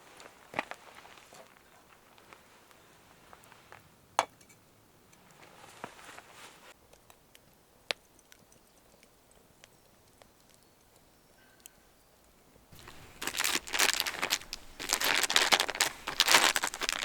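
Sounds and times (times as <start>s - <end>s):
soft hiss: 12.7s - 17.0s.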